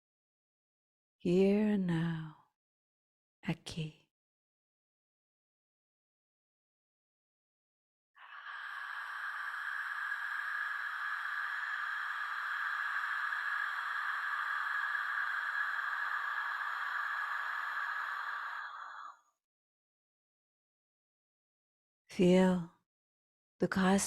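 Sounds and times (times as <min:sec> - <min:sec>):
steady hissing noise: 0:08.3 - 0:18.4.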